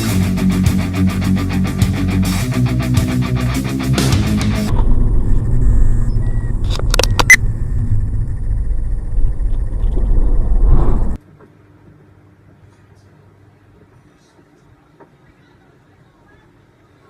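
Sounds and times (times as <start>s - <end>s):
car road and engine rumble: 4.7s - 11.2s.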